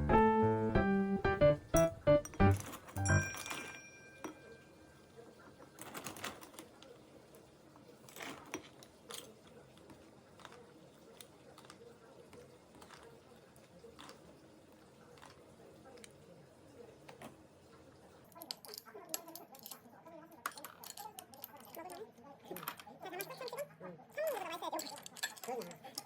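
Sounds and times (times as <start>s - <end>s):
piano music: 0.0s - 3.9s.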